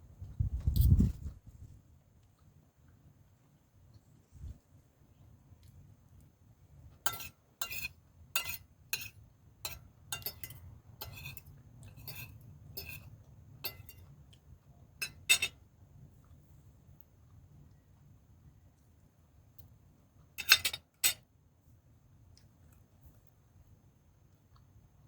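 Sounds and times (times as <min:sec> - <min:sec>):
cutlery clinking against dishes: 0:07.1 - 0:14.1, 0:15.0 - 0:15.6, 0:20.4 - 0:21.2.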